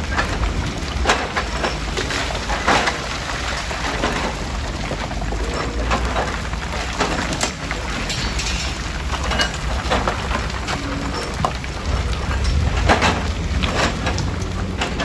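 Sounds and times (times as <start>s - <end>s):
rock crusher rumbling: 0.0s - 15.0s
stone crunching and clattering: 6.9s - 15.0s.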